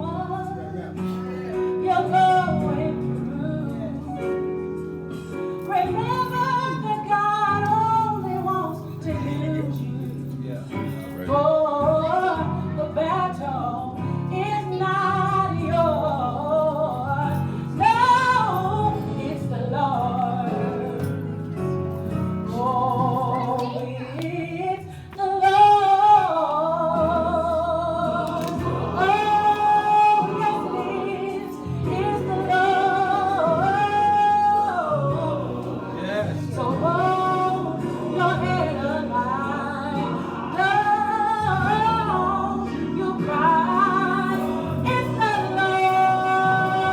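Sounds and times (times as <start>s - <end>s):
woman singing gospel: 0.0s - 46.9s.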